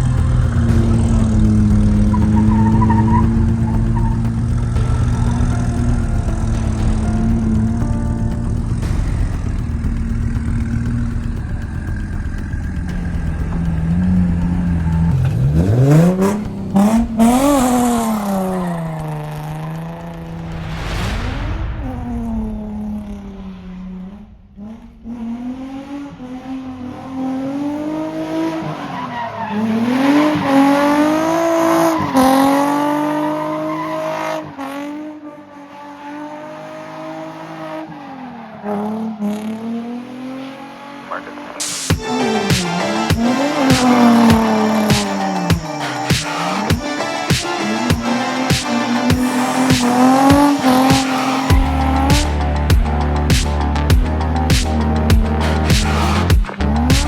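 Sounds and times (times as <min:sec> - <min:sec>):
car engine revving: 0:00.0 - 0:57.0
tyre squeal: 0:01.0 - 0:08.3.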